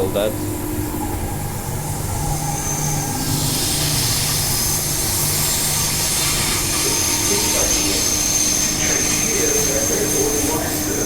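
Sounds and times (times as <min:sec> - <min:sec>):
electric train motor hum: 0:00.0 - 0:11.0
thin high whine: 0:00.0 - 0:11.0.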